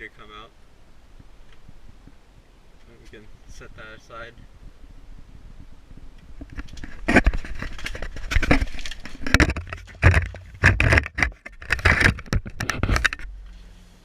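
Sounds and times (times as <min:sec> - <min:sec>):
tools scraping and knocking: 0:06.4 - 0:13.3.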